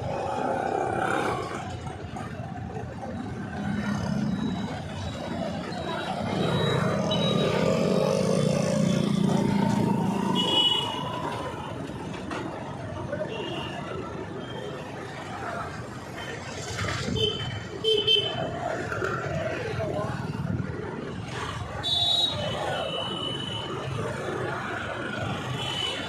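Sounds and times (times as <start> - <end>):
road traffic engines: 0.0 - 26.0.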